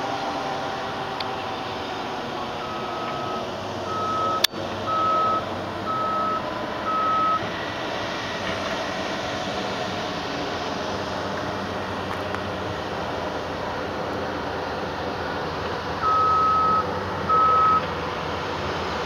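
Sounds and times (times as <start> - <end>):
aircraft engine drone: 0.0 - 19.0
short electronic beeps: 2.6 - 7.4, 16.0 - 17.8.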